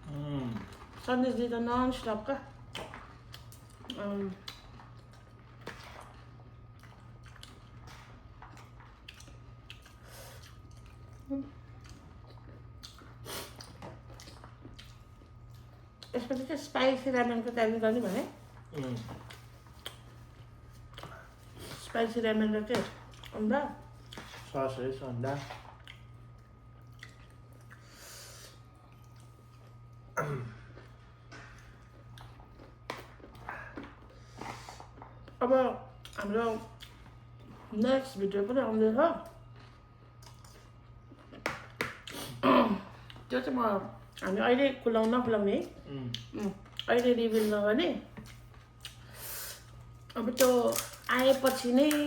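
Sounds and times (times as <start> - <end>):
people chewing: 0.0 - 1.1, 2.6 - 16.5, 17.4 - 22.2, 22.8 - 24.6, 25.3 - 35.4, 39.2 - 43.3, 45.6 - 47.5
steady low hum: 0.0 - 52.0.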